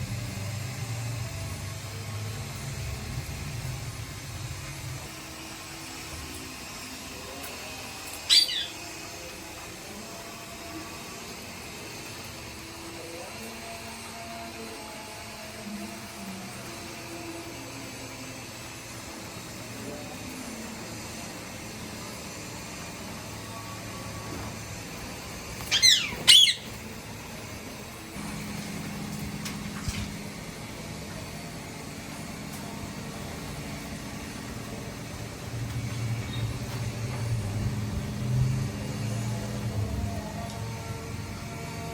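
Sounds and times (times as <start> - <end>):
parrot call: 8.3 - 8.9, 25.6 - 26.8.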